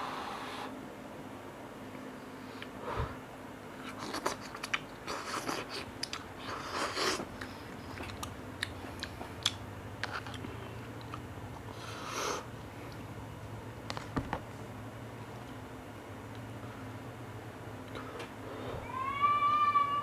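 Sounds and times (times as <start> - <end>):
person chewing noodles: 3.8 - 13.0.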